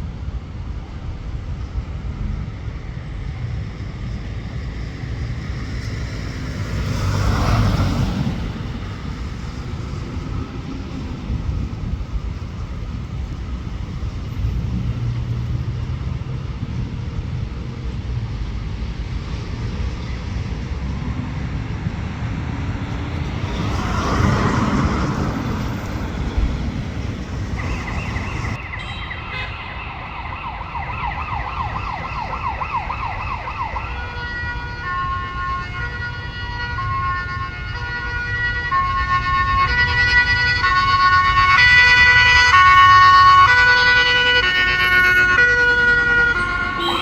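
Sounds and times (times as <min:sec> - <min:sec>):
road traffic rumble: 0:00.0 - 0:47.0
emergency vehicle siren: 0:03.3 - 0:17.7, 0:19.1 - 0:47.0
vehicle passing: 0:04.8 - 0:12.7, 0:20.4 - 0:28.6, 0:39.6 - 0:47.0.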